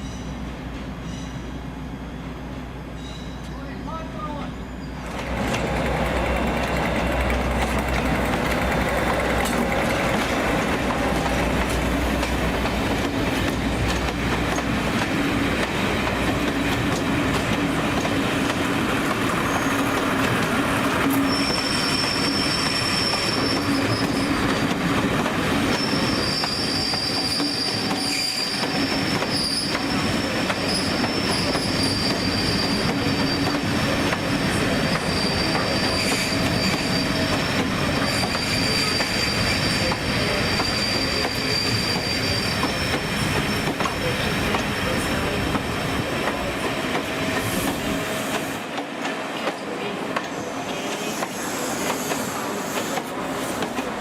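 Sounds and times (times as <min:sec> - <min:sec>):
train wheels rolling on rails: 0:04.8 - 0:54.0
wheels squealing: 0:21.0 - 0:24.6, 0:25.6 - 0:34.0, 0:34.6 - 0:44.1.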